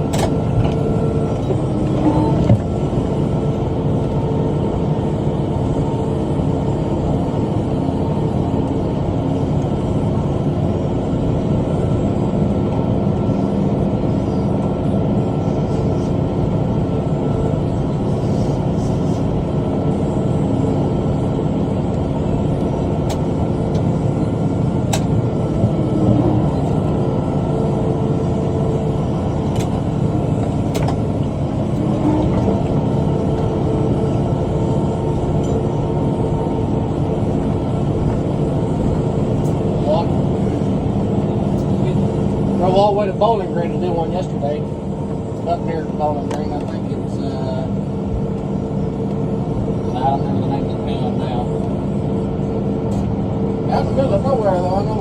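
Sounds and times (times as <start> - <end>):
tractor engine under load: 0.0 - 4.2, 21.2 - 43.0.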